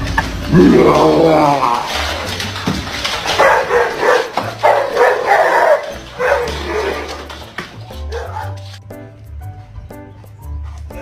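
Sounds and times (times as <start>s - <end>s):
dog barking: 3.3s - 7.2s, 8.1s - 8.6s.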